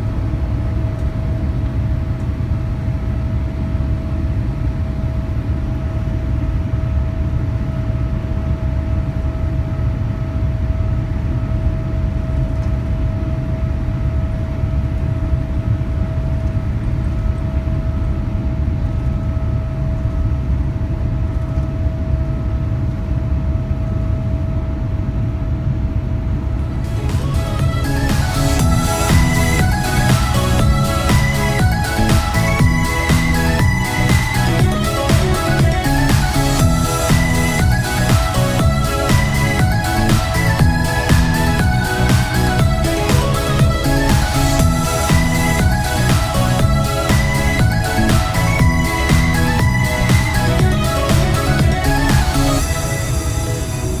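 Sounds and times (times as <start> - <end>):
steady hum: 26.0 - 54.0.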